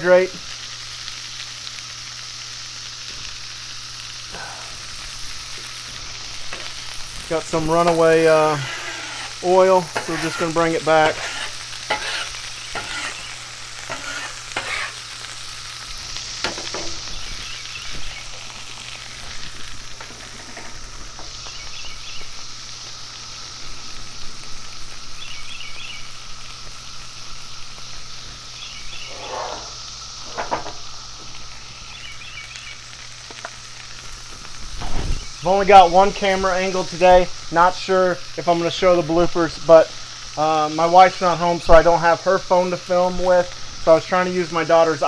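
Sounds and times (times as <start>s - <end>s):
chicken wings sizzling in oil: 0.0s - 45.0s
metal spatula scraping griddle: 7.8s - 15.0s, 29.0s - 30.5s.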